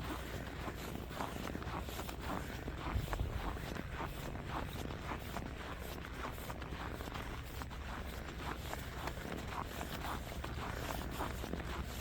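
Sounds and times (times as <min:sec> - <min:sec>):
footsteps walking: 0:00.0 - 0:12.0.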